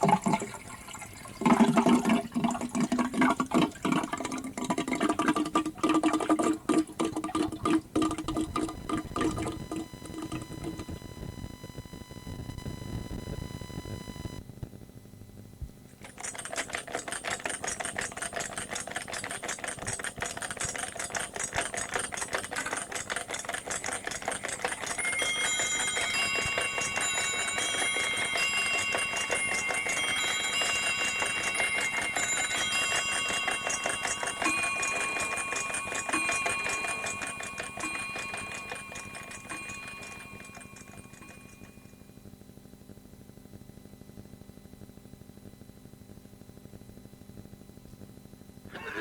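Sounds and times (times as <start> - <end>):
electronic beeps: 8.2 - 14.4
fast mechanical clatter: 16.0 - 41.6.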